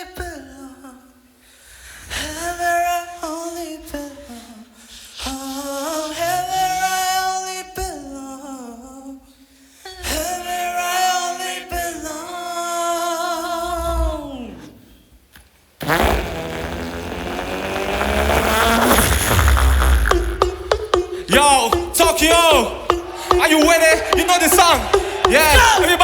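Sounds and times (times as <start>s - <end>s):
a cappella vocal harmony: 0.0s - 15.1s, 18.1s - 26.0s
vocal kick-drum hits: 17.0s - 26.0s.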